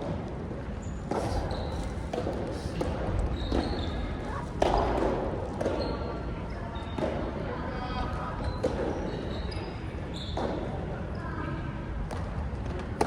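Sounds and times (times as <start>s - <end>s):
shoe squeaks: 0.8s - 4.5s, 5.7s - 7.0s, 8.4s - 10.6s
ball hitting racket and floor: 1.1s - 6.0s.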